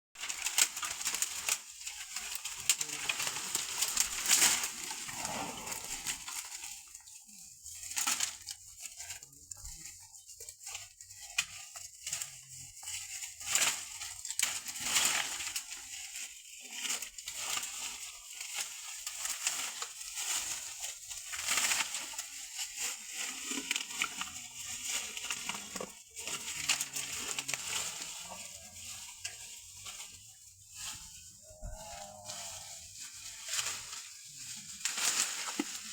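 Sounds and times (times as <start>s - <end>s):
bamboo cracking: 0.2s - 6.7s, 34.8s - 35.9s.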